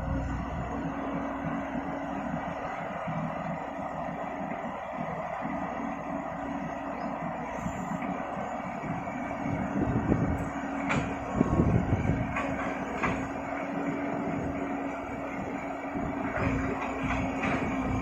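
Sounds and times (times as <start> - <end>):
truck engine hum: 0.0 - 18.0
truck knocks and rattles: 9.8 - 18.0.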